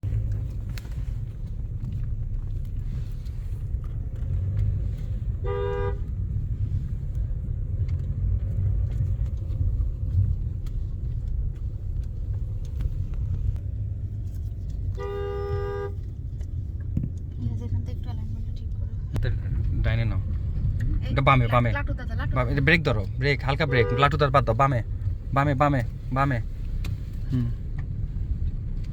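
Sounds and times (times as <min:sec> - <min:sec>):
car engine and road noise: 0:00.0 - 0:28.9
car horn toot: 0:05.3 - 0:06.3, 0:14.9 - 0:16.1, 0:23.4 - 0:24.5.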